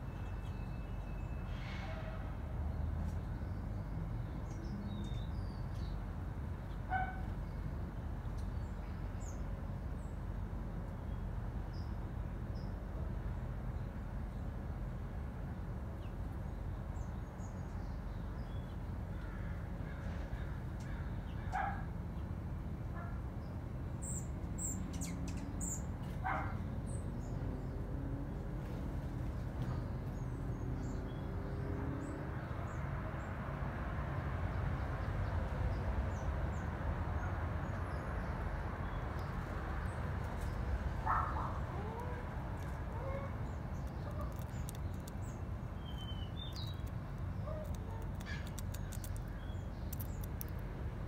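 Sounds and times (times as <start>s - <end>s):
bird calls: 40.4s - 50.6s.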